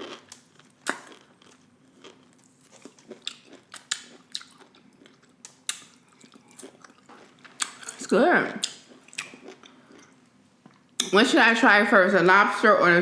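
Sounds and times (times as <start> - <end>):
close chewing: 0.0 - 8.0.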